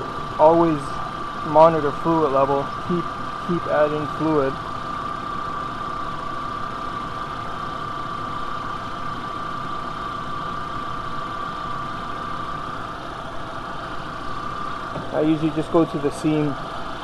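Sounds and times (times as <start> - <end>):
car engine idling: 0.0 - 4.6
steady high-pitched tone: 0.0 - 17.0.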